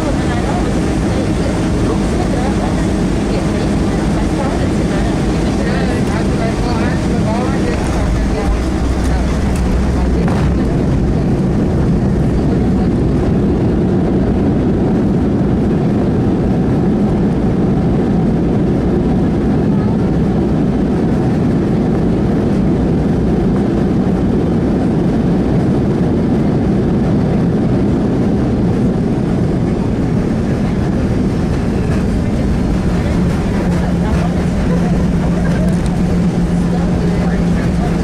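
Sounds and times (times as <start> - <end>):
jet engines rumbling in cabin: 0.0 - 38.0
rushing air: 28.0 - 38.0.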